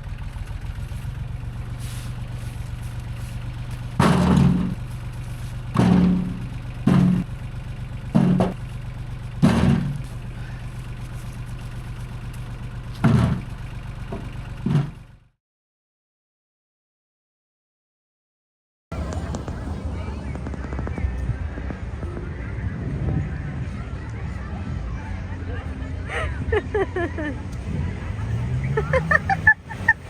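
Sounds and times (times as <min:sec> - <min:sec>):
vehicle engine idling: 0:00.0 - 0:15.4, 0:18.9 - 0:30.0
firewood thudding into vehicle: 0:02.1 - 0:05.1, 0:05.7 - 0:07.3, 0:08.2 - 0:08.6, 0:09.4 - 0:10.2, 0:13.0 - 0:15.0.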